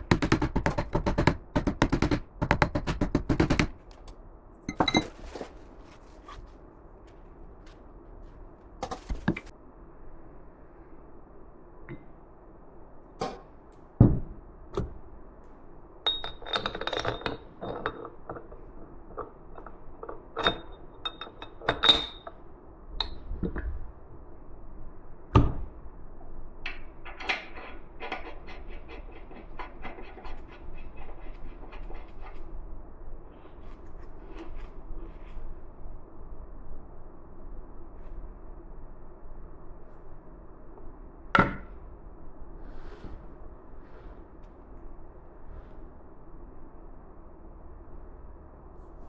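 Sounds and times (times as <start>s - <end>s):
tools knocking and clicking: 0.0s - 5.1s.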